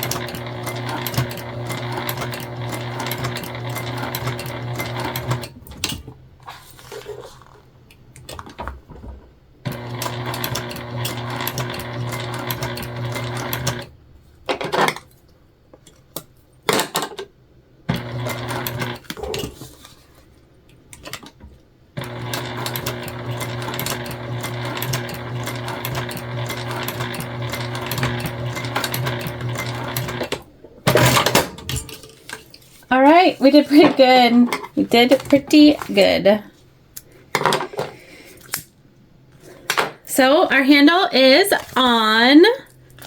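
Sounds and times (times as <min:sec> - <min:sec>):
sewing machine stitching: 0:00.0 - 0:06.1, 0:09.7 - 0:13.9, 0:17.9 - 0:19.6, 0:22.0 - 0:31.5.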